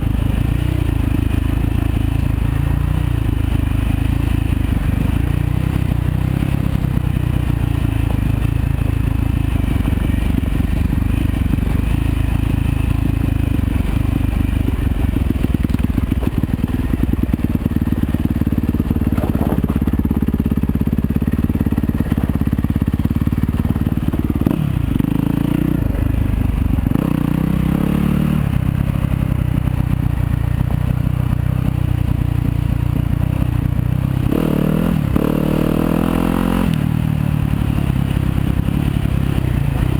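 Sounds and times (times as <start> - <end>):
dirt bike engine revving: 23.8 - 25.9, 34.2 - 36.8.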